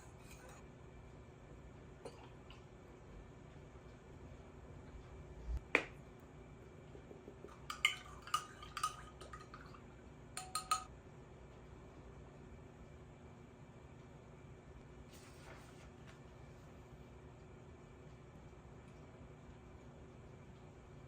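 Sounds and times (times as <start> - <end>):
kitchenware clinking: 7.5 - 9.8, 10.4 - 10.9.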